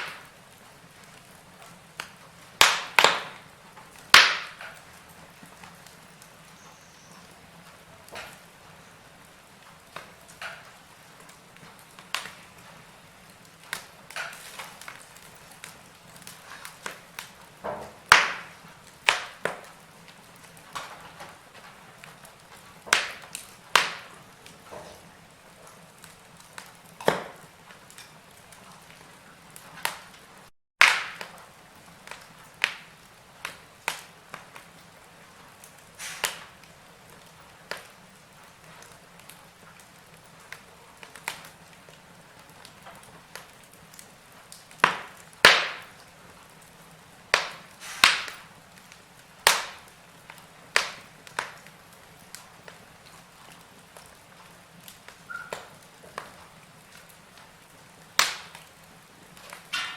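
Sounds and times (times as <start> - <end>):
faint steady hiss: 0.0 - 59.9
wood fire crackling: 0.0 - 59.9.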